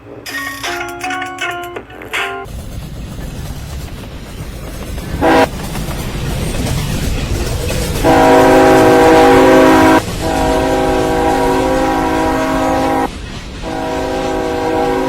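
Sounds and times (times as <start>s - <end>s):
passing train rumble: 0.0s - 15.0s
locomotive air horn blasts: 5.2s - 5.5s, 8.0s - 15.0s.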